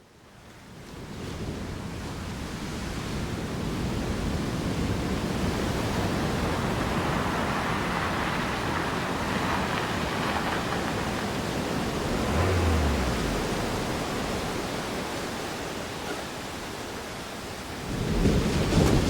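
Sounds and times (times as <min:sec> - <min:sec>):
steady rushing noise: 0:09.0 - 0:15.8.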